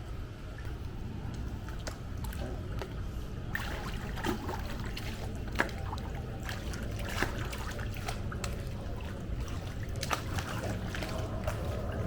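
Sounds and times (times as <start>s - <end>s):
pool water sloshing and splashing: 0.1s - 12.0s
small splashes: 3.5s - 12.0s.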